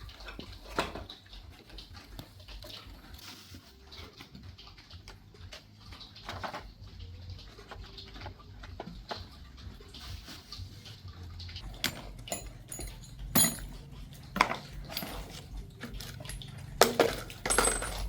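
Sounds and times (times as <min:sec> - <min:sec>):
scattered clicks and knocks: 0:11.5 - 0:18.0.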